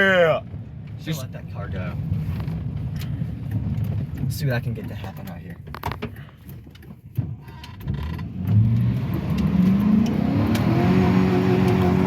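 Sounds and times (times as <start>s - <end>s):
pickup truck engine revving: 8.3s - 12.0s.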